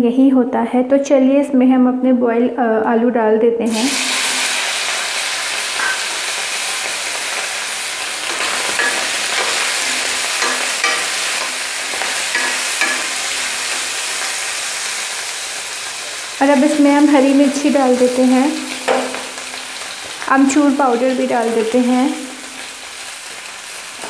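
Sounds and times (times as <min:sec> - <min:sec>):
potatoes sizzling in hot oil: 0:03.7 - 0:24.0
spatula scraping and knocking pan: 0:05.8 - 0:06.3, 0:08.2 - 0:14.4, 0:18.6 - 0:20.2.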